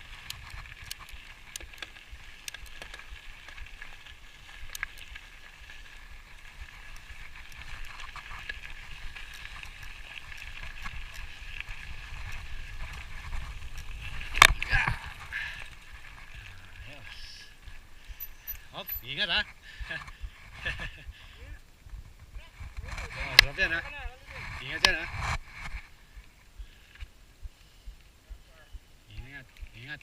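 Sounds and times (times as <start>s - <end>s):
small clicks: 0.2s - 3.6s
wind rumble on microphone: 4.8s - 16.9s, 19.4s - 29.8s.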